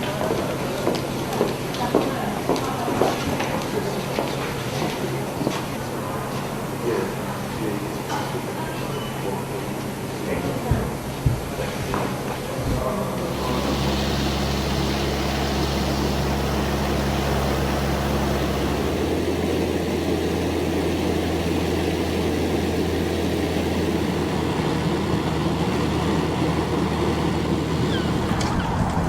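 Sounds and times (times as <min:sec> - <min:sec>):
engine droning hum: 0:13.0 - 0:29.0
rushing noise: 0:13.2 - 0:29.0.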